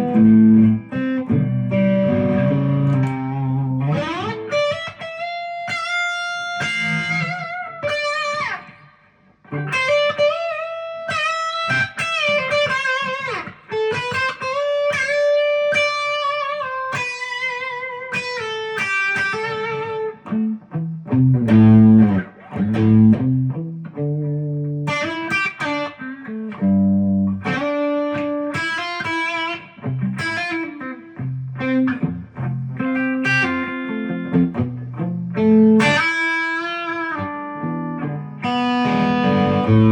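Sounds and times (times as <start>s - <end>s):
electric guitar melody: 0.0s - 39.9s.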